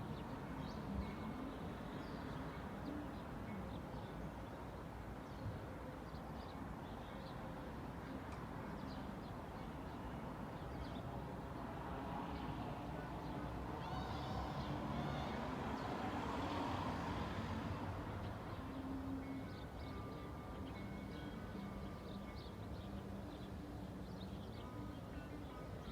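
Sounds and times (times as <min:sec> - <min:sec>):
road traffic rumble: 0:11.0 - 0:20.7.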